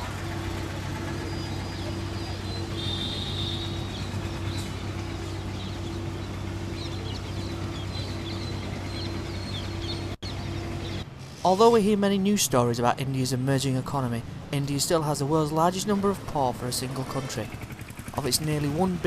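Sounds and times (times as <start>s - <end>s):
steady low hum: 0.0s - 11.4s
high bird chirps: 0.8s - 11.0s.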